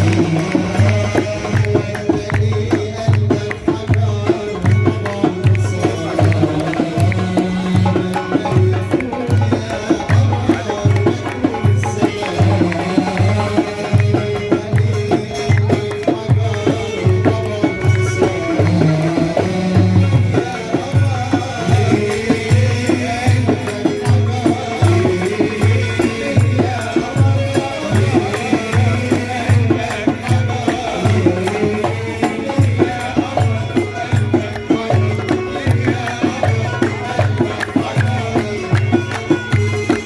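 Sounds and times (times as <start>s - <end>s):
low drum beat: 0.0s - 40.0s
shaken hand percussion: 0.0s - 40.0s.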